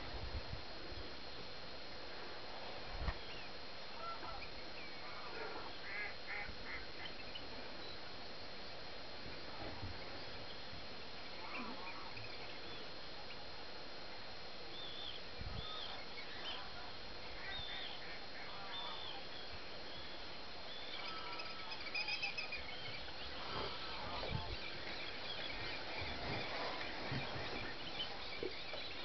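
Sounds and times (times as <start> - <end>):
outdoor background hiss: 0.0 - 29.0
high bird calls: 14.7 - 29.0.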